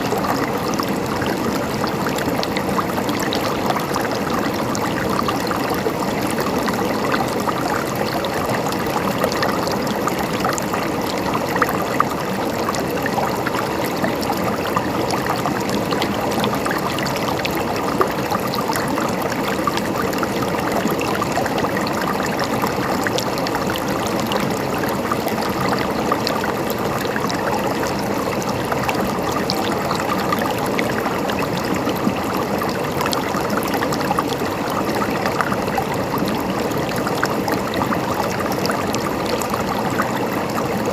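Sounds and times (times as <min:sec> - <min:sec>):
river flowing over stones: 0:00.0 - 0:40.9.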